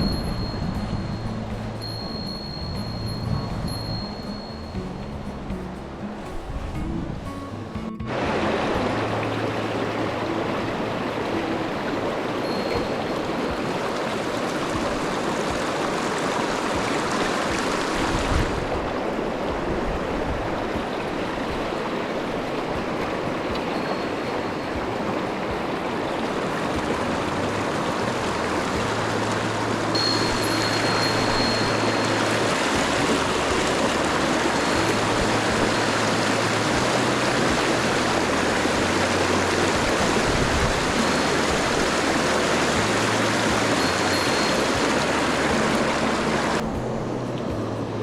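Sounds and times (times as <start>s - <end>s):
stream rushing over rocks: 0.0s - 48.0s.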